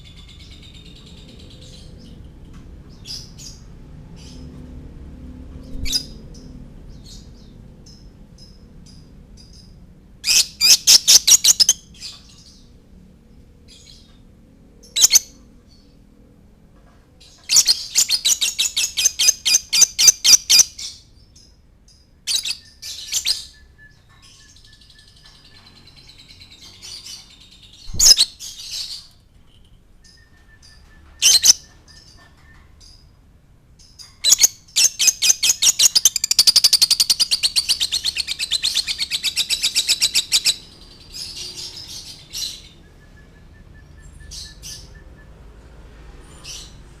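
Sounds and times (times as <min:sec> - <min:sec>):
lovebird chirping: 0:05.7 - 0:12.7, 0:14.8 - 0:15.8, 0:17.4 - 0:33.1, 0:33.8 - 0:45.1.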